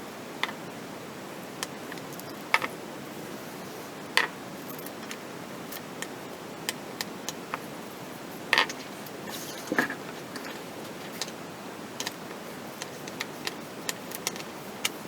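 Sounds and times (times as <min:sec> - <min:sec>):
steady hiss: 0:00.0 - 0:15.0
small hard parts clicking: 0:12.8 - 0:15.0.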